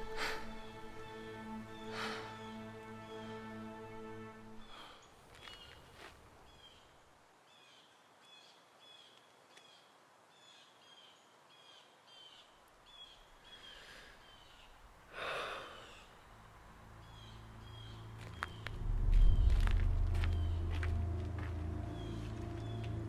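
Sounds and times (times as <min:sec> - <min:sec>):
bird chirping: 0:15.5 - 0:23.0.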